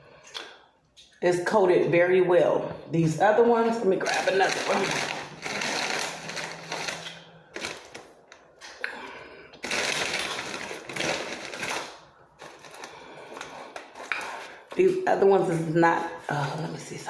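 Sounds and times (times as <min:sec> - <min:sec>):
foil snack bag crackling: 0:04.0 - 0:08.3, 0:09.6 - 0:14.7.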